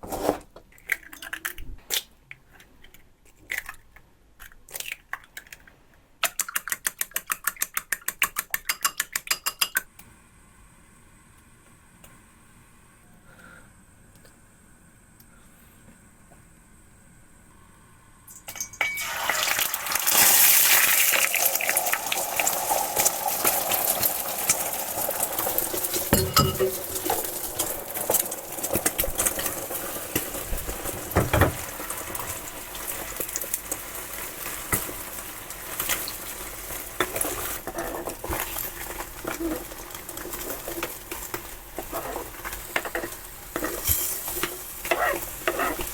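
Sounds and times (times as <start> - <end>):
food sizzling in hot oil: 18.3 - 45.9
utensil scraping a pan: 35.7 - 45.9.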